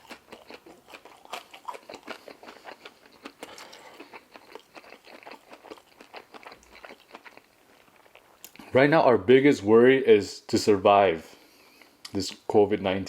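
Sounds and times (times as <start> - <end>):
person chewing crunchy food: 0.0 - 8.7
wet mouth clicks: 8.1 - 8.7.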